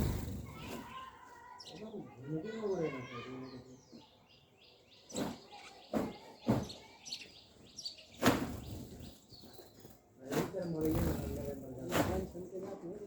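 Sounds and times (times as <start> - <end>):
bird chirping: 0.0 - 10.0, 10.6 - 12.5.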